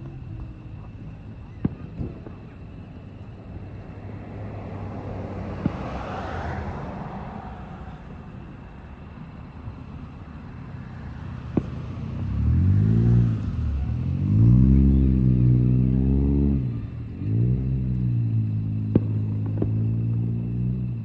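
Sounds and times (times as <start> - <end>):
sharp pop: 5.6 - 5.9, 11.5 - 11.8, 18.9 - 19.8
engine revving: 11.4 - 21.0.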